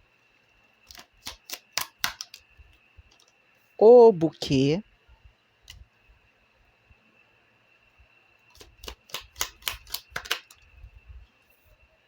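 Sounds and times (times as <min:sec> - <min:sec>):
cards shuffled and slapped: 0:00.9 - 0:02.4, 0:08.6 - 0:10.6.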